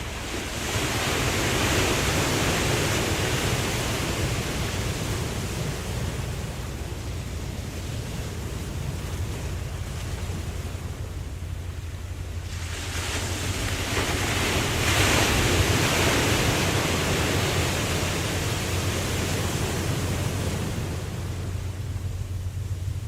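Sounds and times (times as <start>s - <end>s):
ocean wave washing in and out: 0.0s - 23.0s
low rumble: 17.8s - 23.0s.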